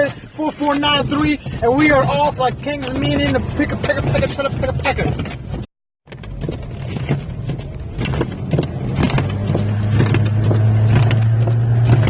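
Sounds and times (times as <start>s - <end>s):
road and tyre rumble: 0.0s - 12.0s
knocks and clicks: 0.6s - 12.0s
car engine low hum: 1.0s - 12.0s.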